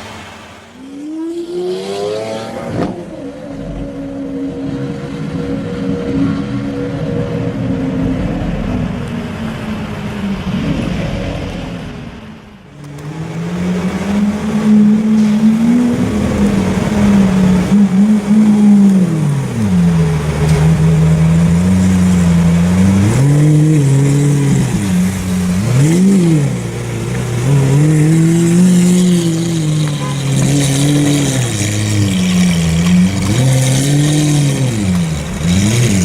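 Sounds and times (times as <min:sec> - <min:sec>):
loud engine revving: 0:00.0 - 0:03.7, 0:12.7 - 0:36.0.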